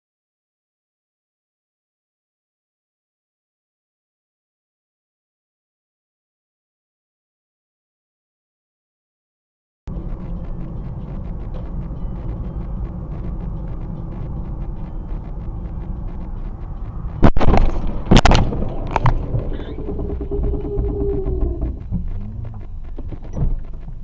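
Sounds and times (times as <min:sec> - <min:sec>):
vehicle and road rumble: 0:09.9 - 0:24.0
car crash impacts: 0:17.2 - 0:19.7.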